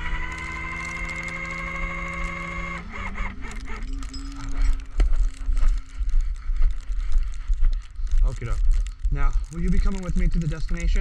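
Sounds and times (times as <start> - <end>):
winch whining: 0.0 - 5.0
gusty low rumbling: 0.0 - 9.6.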